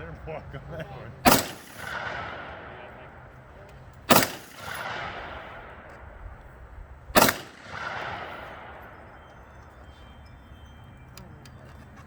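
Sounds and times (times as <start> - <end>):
rifle shot with rolling echo: 1.2 - 9.8.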